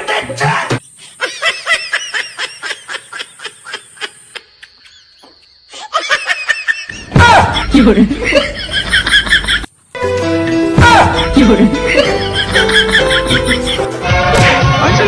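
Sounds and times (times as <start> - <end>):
high-pitched laughter: 1.0 - 9.7, 11.1 - 13.9.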